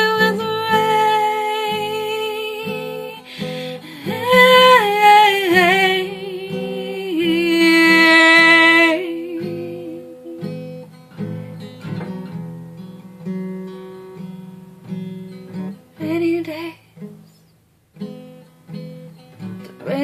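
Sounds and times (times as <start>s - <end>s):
acoustic guitar picked chords: 0.0s - 20.0s
person singing wordless notes: 4.0s - 10.6s.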